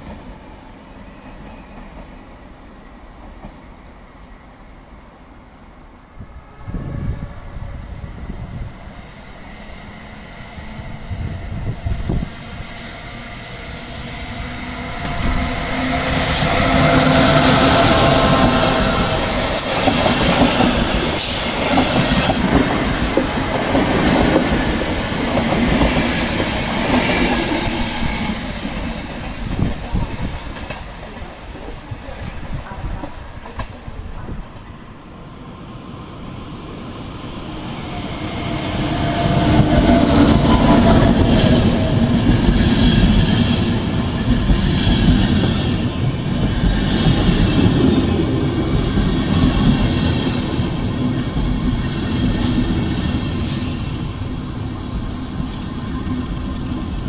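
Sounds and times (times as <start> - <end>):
approaching train: 0.0 - 57.0
wheel squeal: 53.4 - 57.0.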